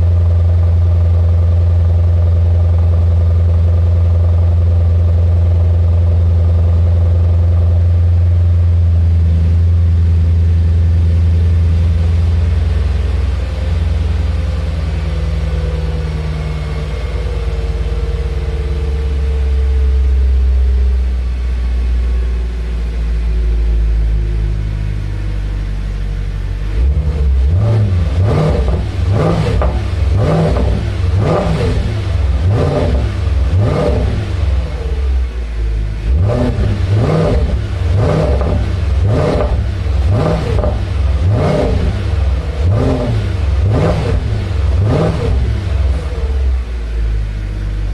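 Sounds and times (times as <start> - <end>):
car engine idling: 0.0 - 47.9
car engine revving: 0.0 - 47.9.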